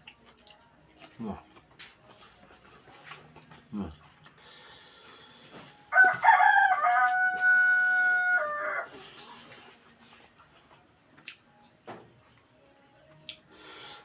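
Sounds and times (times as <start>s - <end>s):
rooster crowing: 5.9s - 9.0s.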